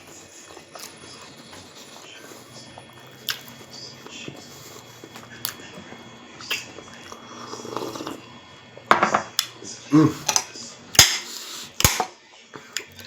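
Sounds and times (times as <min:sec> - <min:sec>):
person chewing food: 0:00.0 - 0:08.5.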